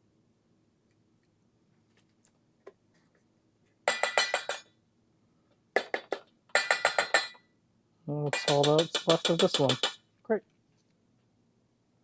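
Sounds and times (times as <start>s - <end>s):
utensil clinking against glass: 8.3s - 10.0s.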